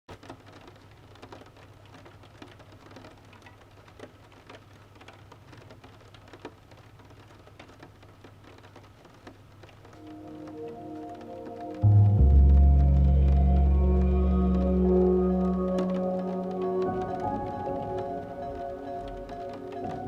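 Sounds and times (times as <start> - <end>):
rain drops tapping hard surface: 0.1 - 20.0
low steady hum: 10.0 - 17.8.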